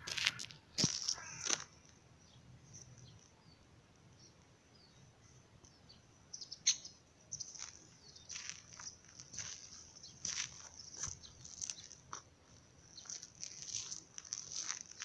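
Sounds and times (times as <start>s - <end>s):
faint bird chirps: 4.2s - 9.0s.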